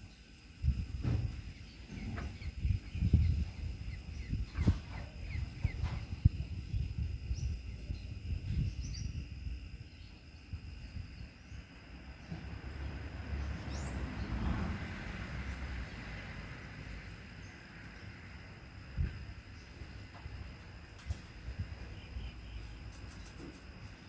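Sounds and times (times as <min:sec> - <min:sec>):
high insect tone: 0:00.0 - 0:24.0
wind buffeting microphone: 0:00.6 - 0:11.6, 0:18.7 - 0:22.3.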